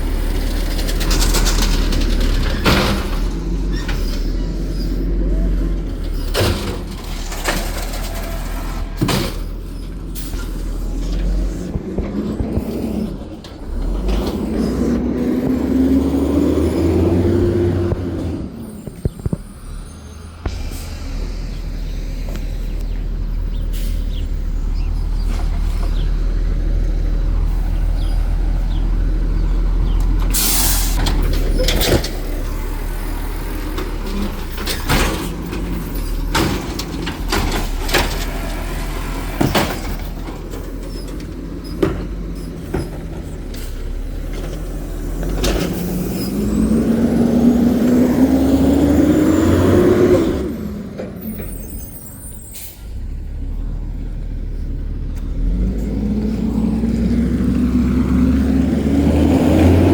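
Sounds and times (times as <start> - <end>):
engine revving: 0.0 - 51.5, 52.8 - 59.9
garbage truck engine: 0.0 - 59.9
air brakes hissing: 23.5 - 24.5, 30.3 - 31.1, 51.2 - 53.2.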